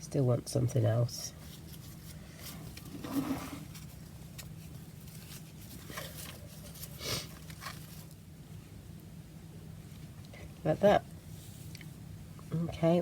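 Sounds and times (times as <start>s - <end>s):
steady low hum: 0.0s - 13.0s
paper and card being handled: 1.4s - 8.1s.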